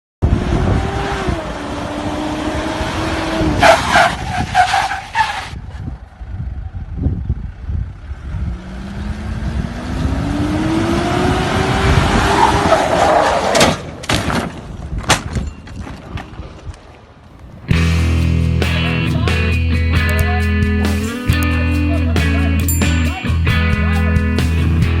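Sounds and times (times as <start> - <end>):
off-road engine revving: 0.2 - 4.5, 7.5 - 13.5.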